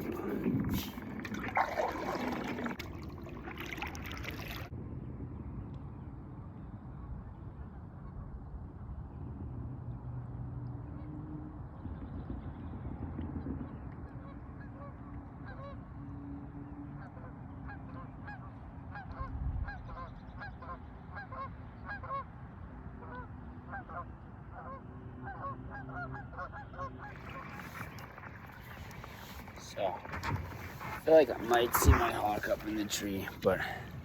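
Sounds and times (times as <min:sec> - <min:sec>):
wind and water rumble: 0:00.0 - 0:34.0
geese honking: 0:23.0 - 0:33.4.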